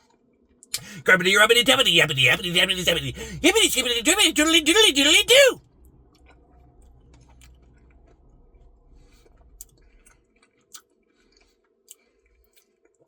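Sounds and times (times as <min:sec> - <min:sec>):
faint chewing: 0:09.6 - 0:13.0.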